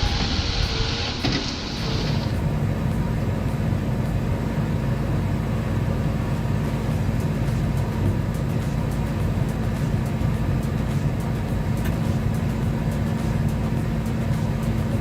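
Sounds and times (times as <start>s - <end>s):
high hiss: 0.0s - 2.4s
heavy diesel engine droning: 0.0s - 15.0s.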